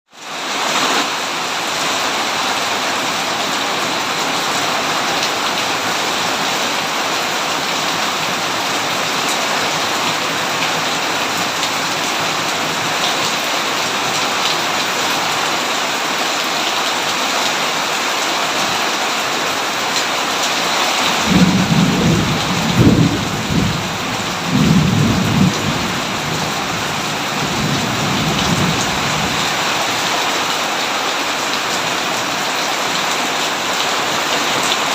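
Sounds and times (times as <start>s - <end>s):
heavy rain falling: 0.1s - 34.9s
thunder rumbling: 21.0s - 29.6s.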